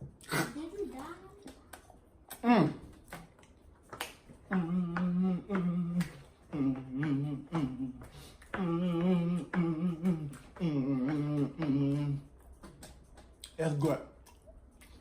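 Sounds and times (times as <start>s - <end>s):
man humming with mouth closed: 2.3s - 3.0s, 4.4s - 12.8s.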